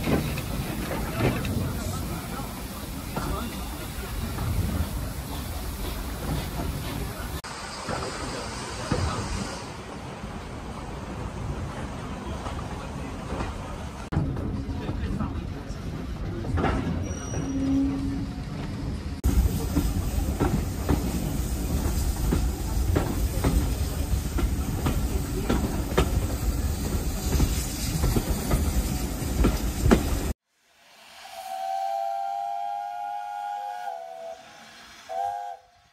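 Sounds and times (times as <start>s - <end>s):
train carriage rumble: 0.0s - 30.4s
steam whistle blowing: 30.9s - 35.9s.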